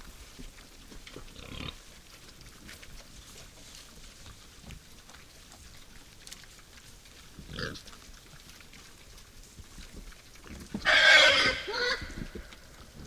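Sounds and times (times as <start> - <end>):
wild boar calling: 10.5 - 13.0.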